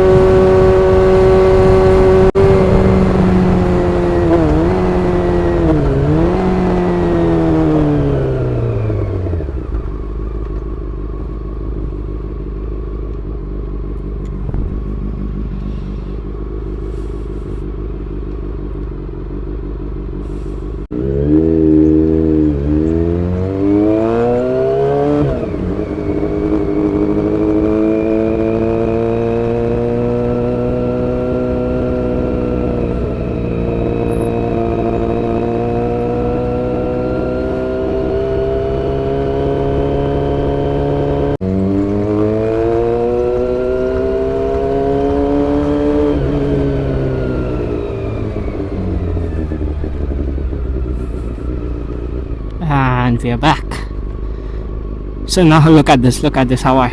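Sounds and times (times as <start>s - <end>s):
wind noise: 0.0s - 8.2s
motorcycle engine revving and cruising: 0.0s - 56.9s.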